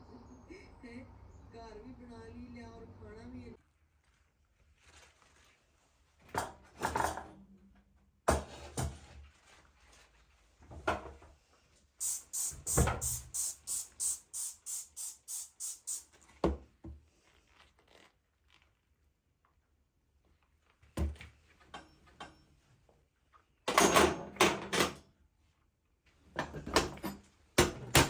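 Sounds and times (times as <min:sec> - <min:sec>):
kitchen knocks and clatters: 0:06.2 - 0:07.5, 0:08.3 - 0:09.2, 0:10.7 - 0:11.3, 0:23.7 - 0:25.0, 0:26.3 - 0:28.0.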